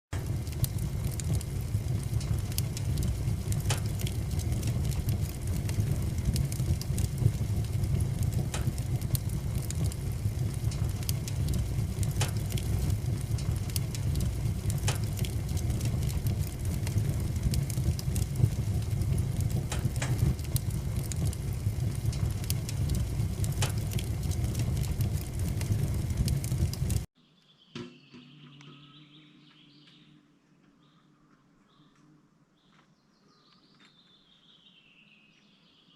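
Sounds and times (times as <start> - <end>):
wood fire crackling in stove: 0.1 - 27.1
faint bird chirp: 27.2 - 35.9.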